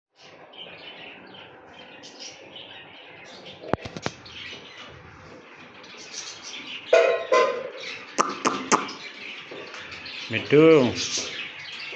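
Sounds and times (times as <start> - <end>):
baby budgerigars chirping: 0.2 - 11.9
sharp clicks: 3.7 - 4.2.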